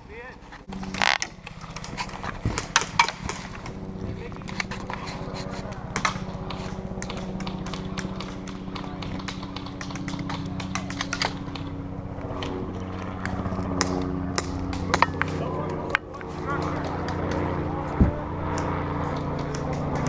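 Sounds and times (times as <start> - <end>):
steady low hum: 0.0 - 20.0
airsoft guns firing: 5.9 - 11.7.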